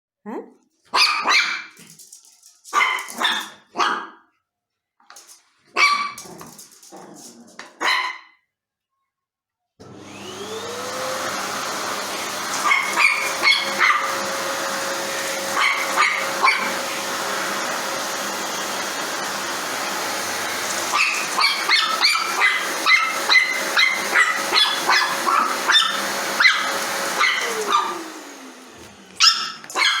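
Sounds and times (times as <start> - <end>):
dog barking: 0.9 - 1.8, 2.7 - 4.3, 5.7 - 6.3, 7.8 - 8.4, 12.5 - 14.4, 15.5 - 17.0, 20.8 - 28.1, 29.2 - 30.0
vacuum cleaner motor hum: 9.8 - 30.0.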